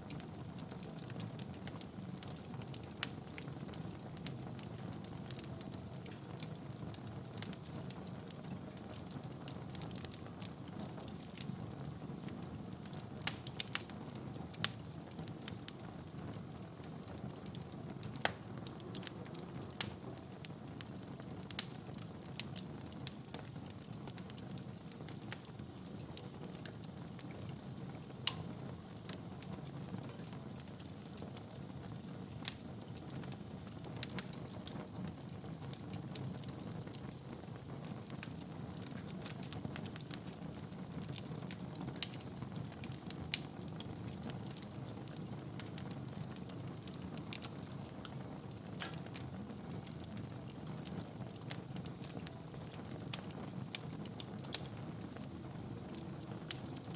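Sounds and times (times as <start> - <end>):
wood fire crackling: 0.0 - 56.9.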